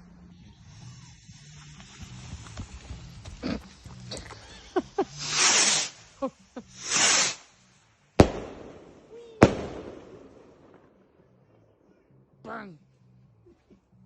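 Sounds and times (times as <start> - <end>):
firework hissing whooshes: 0.0 - 10.6
firework bangs echoing: 8.2 - 11.0.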